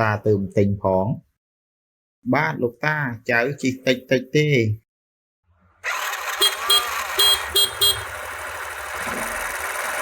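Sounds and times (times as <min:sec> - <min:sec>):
motorcycle engine running: 0:05.6 - 0:10.0
short horn beeps: 0:06.3 - 0:08.2.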